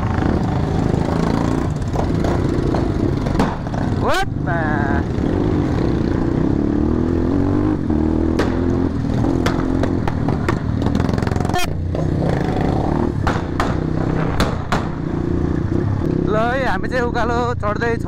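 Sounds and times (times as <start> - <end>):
motorcycle engine running: 0.0 - 18.0
sharp cracks: 8.3 - 8.7, 13.2 - 15.1.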